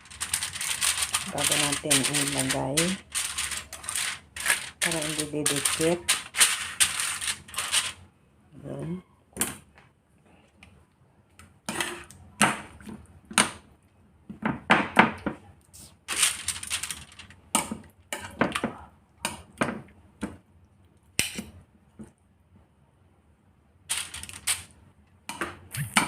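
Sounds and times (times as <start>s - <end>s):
clatter on baking tray: 0.0s - 8.0s, 16.1s - 18.8s, 23.9s - 24.7s.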